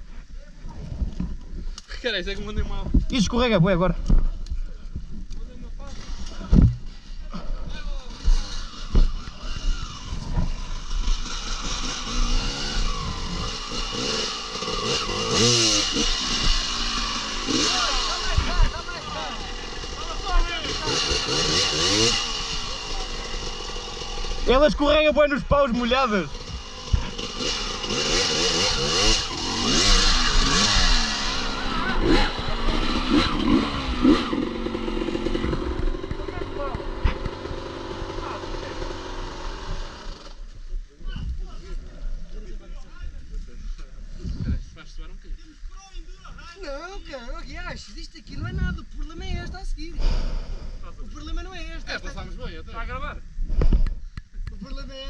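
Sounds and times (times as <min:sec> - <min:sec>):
motorcycle engine revving: 0:05.8 - 0:40.7.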